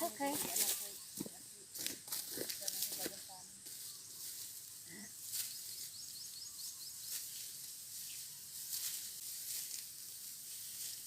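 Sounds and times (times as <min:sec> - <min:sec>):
insect hiss: 0:00.0 - 0:11.0
harvesting knife cutting rice stalks: 0:00.2 - 0:11.0
bird chirps: 0:03.3 - 0:04.8, 0:05.4 - 0:08.3.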